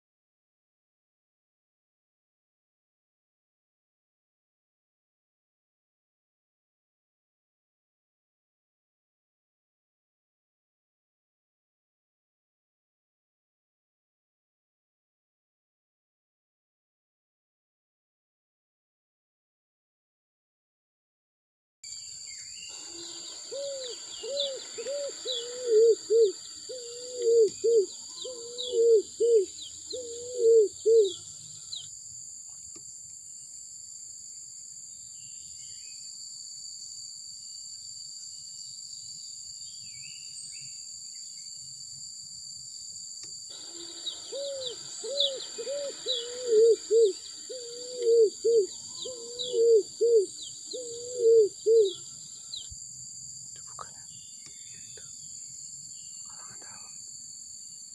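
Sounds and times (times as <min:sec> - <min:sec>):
high-pitched insect buzz: 0:22.0 - 0:29.4, 0:43.3 - 0:49.4.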